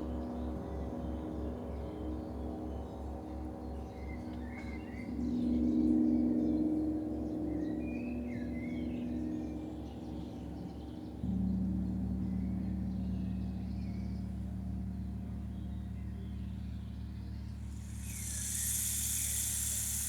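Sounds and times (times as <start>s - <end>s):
faint bird chirps: 17.6s - 20.0s
high hissing shimmer: 17.6s - 20.0s.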